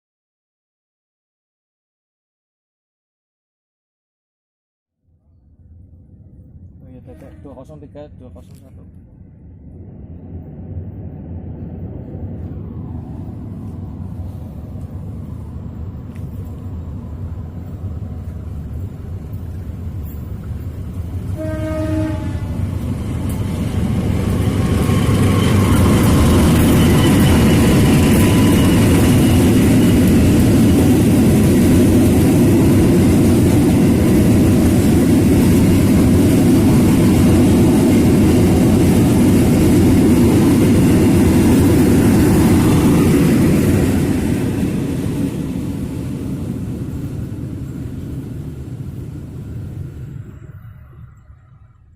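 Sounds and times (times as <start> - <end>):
train engines and carriages rumbling: 5.1 - 51.9
locomotive horn blast: 21.3 - 22.7.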